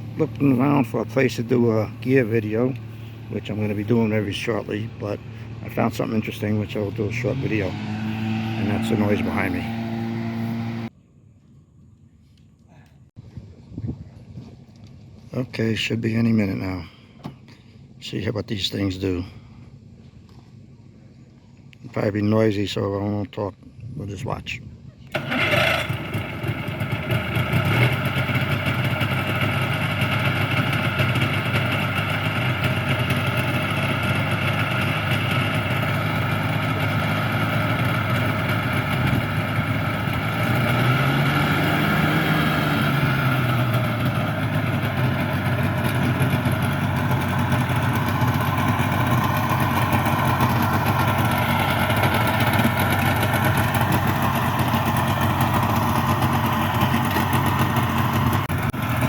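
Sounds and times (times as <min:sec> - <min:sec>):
hovercraft engine droning: 0:00.0 - 0:10.9, 0:25.1 - 0:59.0.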